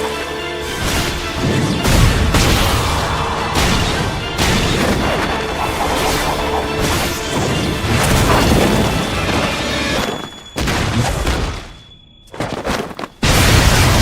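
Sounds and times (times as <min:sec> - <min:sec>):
orchestral music score: 0:00.0 - 0:10.6
booming blasts and impacts: 0:00.7 - 0:12.0, 0:13.2 - 0:14.0.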